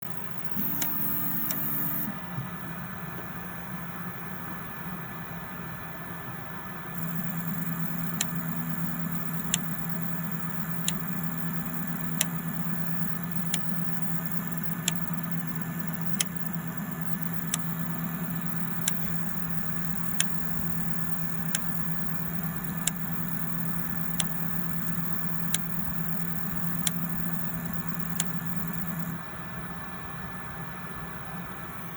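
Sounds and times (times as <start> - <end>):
machine humming: 0.0 - 2.8, 6.8 - 29.5
sharp click: 0.6 - 2.1, 8.0 - 8.5, 9.2 - 9.8, 10.7 - 11.1, 11.8 - 12.4, 13.4 - 13.8, 14.6 - 15.2, 16.0 - 17.8, 18.4 - 20.4, 21.4 - 29.1.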